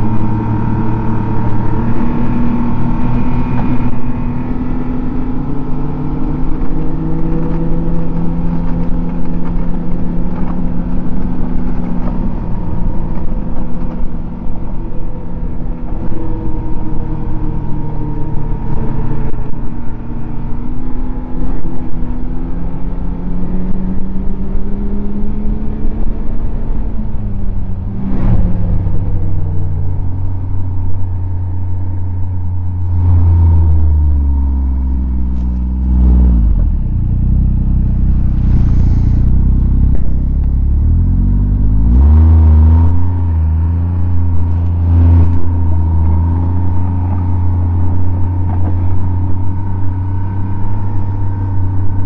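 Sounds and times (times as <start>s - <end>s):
snowmobile engine running: 0.0s - 24.0s, 32.0s - 52.0s
steady whine: 0.0s - 52.0s.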